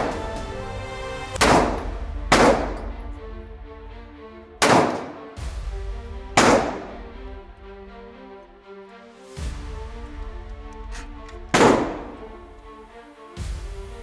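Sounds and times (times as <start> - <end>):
background music: 0.0 - 14.0
handgun shots ringing: 1.4 - 3.1, 4.6 - 5.3, 6.4 - 7.1, 11.6 - 12.3.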